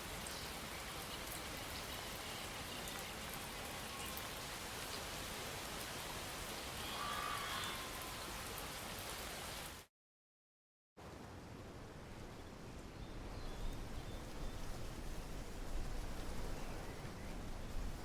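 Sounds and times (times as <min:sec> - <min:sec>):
steady rain falling: 0:00.0 - 0:09.9, 0:11.0 - 0:18.0
faint pitched call: 0:06.8 - 0:08.3.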